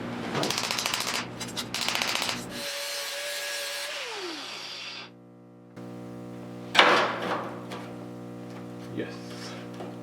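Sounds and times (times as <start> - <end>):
power tool whining: 2.4 - 5.2.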